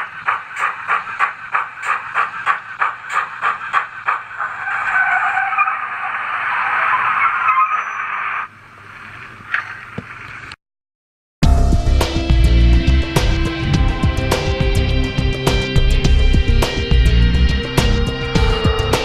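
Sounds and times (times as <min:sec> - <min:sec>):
music: 0:00.0 - 0:04.3, 0:11.4 - 0:19.0
model steam locomotive chuffing: 0:00.0 - 0:04.6
soft steam hiss: 0:00.0 - 0:04.8
screeching hiss: 0:00.0 - 0:08.5.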